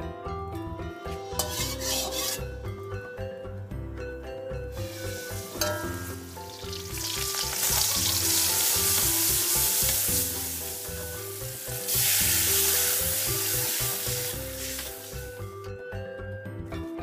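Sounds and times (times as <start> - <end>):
metal spatula scraping a wok: 1.0 - 2.6, 4.8 - 15.2
seasonings sizzling in hot oil: 4.7 - 15.5.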